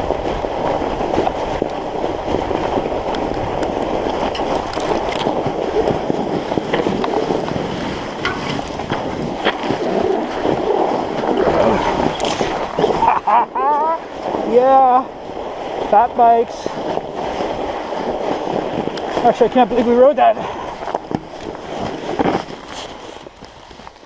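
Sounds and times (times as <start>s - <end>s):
bike tyres rolling over snow: 0.0s - 24.0s
wind on microphone: 0.0s - 24.0s
small clicks and crunches: 3.1s - 5.9s.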